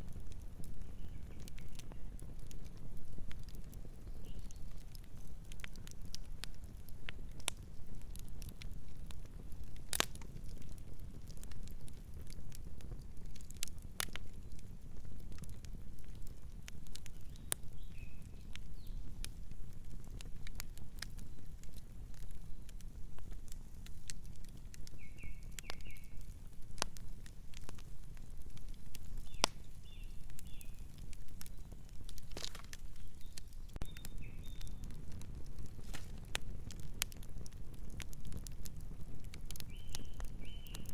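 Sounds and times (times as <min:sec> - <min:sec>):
fire crackling and popping: 0:00.0 - 0:40.9
bird chirps: 0:25.0 - 0:26.2, 0:33.0 - 0:34.8, 0:39.7 - 0:40.9.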